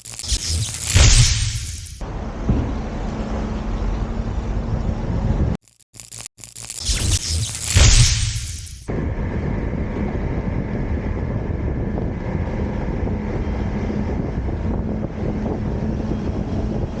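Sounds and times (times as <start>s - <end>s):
wind buffeting microphone: 2.4s - 5.6s, 8.9s - 17.0s.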